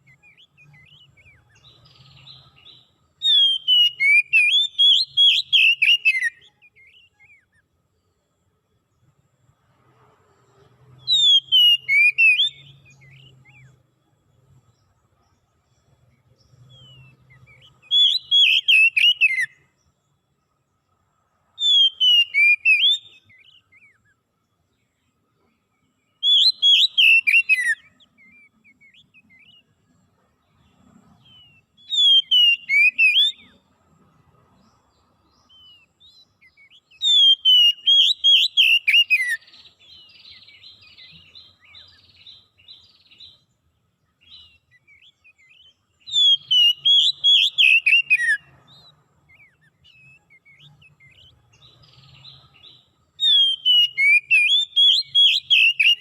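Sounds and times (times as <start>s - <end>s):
songbird whistled phrase: 26.2s - 29.6s, 31.8s - 33.5s, 36.5s - 42.1s, 44.3s - 48.4s, 53.2s - 56.0s.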